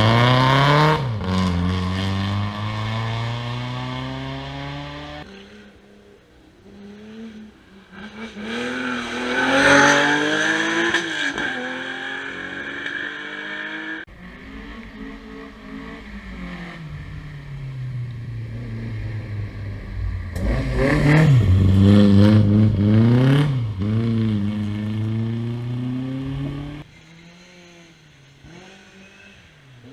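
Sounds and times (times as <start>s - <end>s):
rally car engine revving past: 6.8s - 29.9s.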